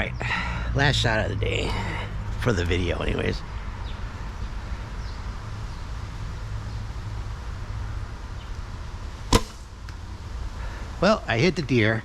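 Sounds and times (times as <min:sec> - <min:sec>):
bow string snap: 0:09.3 - 0:10.0.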